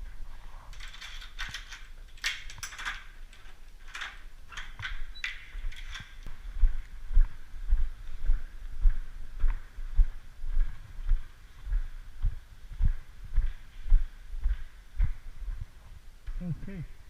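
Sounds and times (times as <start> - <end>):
gear clicking and rustling: 0.6 - 6.3.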